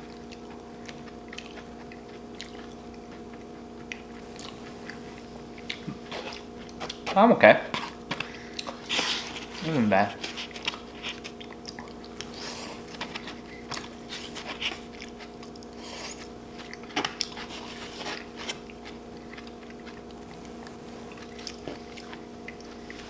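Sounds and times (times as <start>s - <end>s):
chewing and biting food: 0.0s - 23.0s.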